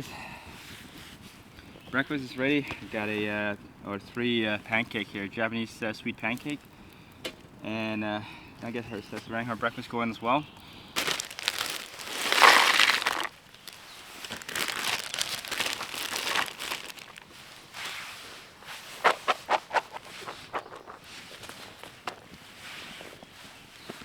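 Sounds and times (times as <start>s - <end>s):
packaging crinkling and rustling: 11.0s - 22.4s.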